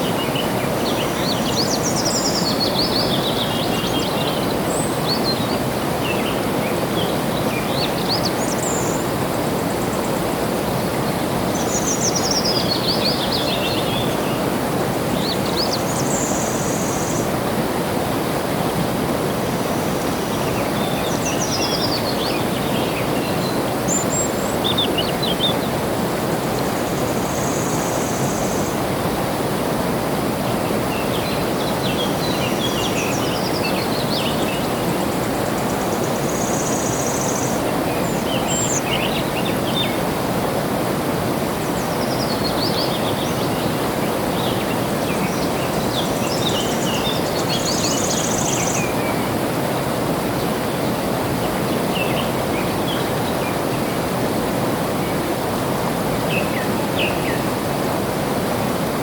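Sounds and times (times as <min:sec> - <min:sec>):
flowing water rushing: 0:00.0 - 0:59.0
small birds chirping: 0:41.8 - 0:49.3.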